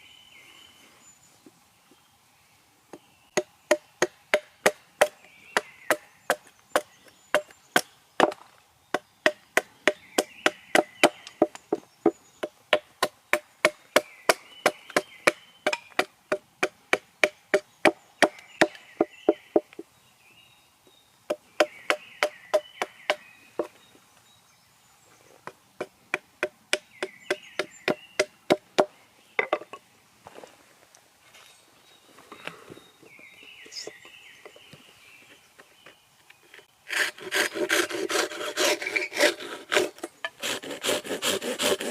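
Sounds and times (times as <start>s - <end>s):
bird singing: 0.0s - 30.0s, 31.3s - 40.4s
hatchet chopping wood: 3.4s - 11.8s, 12.4s - 19.8s, 21.3s - 23.7s, 25.4s - 29.7s.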